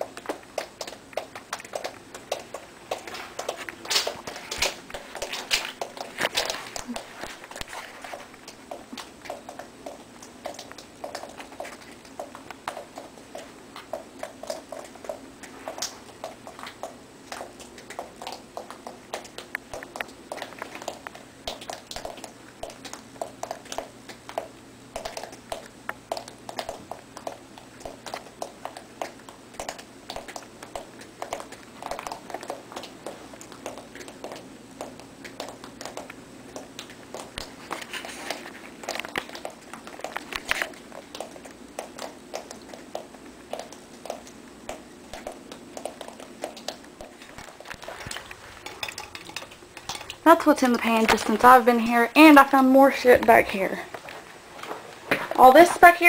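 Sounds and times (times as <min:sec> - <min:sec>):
water dripping into a pan: 0:08.4 - 0:37.5, 0:38.8 - 0:47.8, 0:48.6 - 0:51.0.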